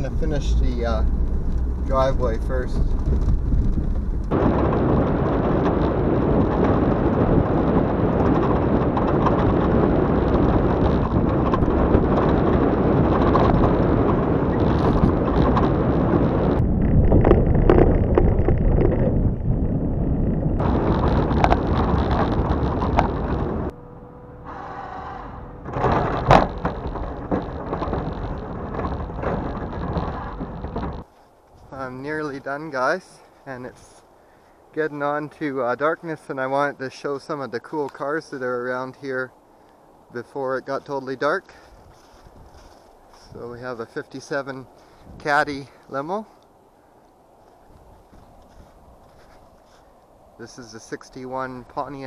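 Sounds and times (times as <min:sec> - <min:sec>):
vehicle plowing snow: 0:00.0 - 0:16.6, 0:20.6 - 0:31.0.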